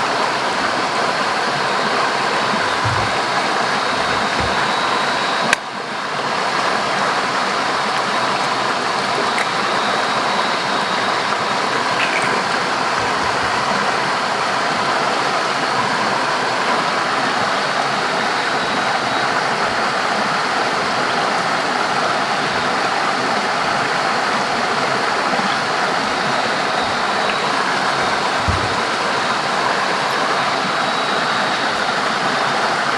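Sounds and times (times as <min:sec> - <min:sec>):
water rushing: 0:00.0 - 0:32.9.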